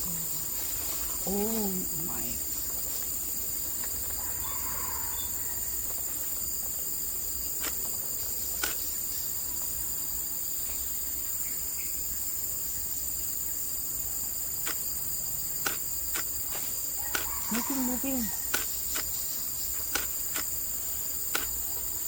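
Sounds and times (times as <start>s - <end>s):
shrill insect chorus: 0.0s - 22.0s
sharp clicks: 8.6s - 8.9s, 14.6s - 14.8s, 15.6s - 16.3s, 17.0s - 19.2s, 19.8s - 20.6s, 21.2s - 21.7s.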